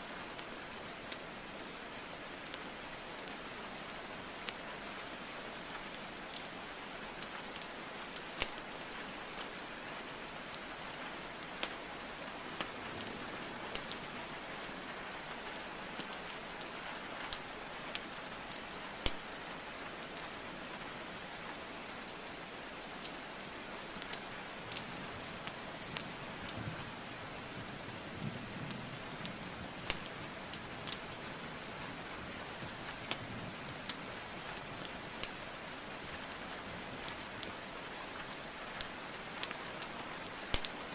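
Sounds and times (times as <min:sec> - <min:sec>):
rain hiss: 0:00.0 - 0:40.9
wood fire crackling: 0:00.3 - 0:09.6, 0:10.3 - 0:14.4, 0:15.2 - 0:20.4, 0:23.0 - 0:27.9, 0:28.7 - 0:40.9.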